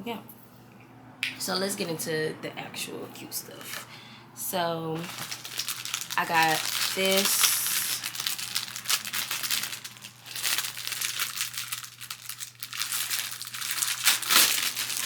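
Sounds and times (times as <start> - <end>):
packaging crinkling and tearing: 5.0 - 15.0.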